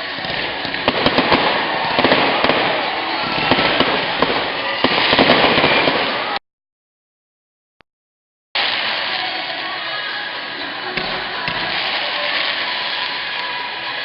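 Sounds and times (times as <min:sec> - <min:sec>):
fireworks crackling: 0:00.0 - 0:06.4, 0:08.6 - 0:14.0
loud fireworks pops: 0:00.0 - 0:06.4, 0:10.9 - 0:13.5
steady hiss: 0:08.6 - 0:14.0.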